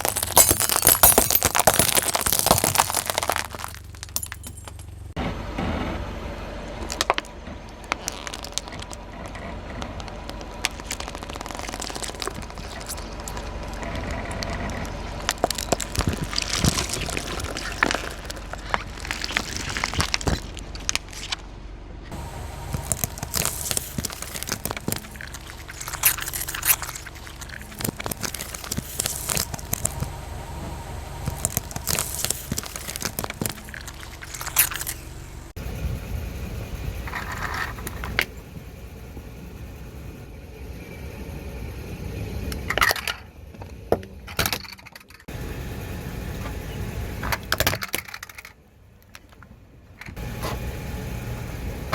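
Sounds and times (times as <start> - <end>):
car tyre crunching objects: 0.0 - 40.2
low steady rumble: 0.0 - 51.9.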